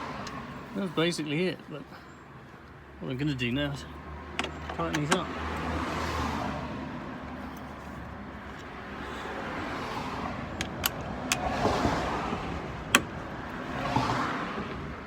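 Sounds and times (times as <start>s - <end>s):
metallic tool clicks and taps: 10.6s - 11.5s.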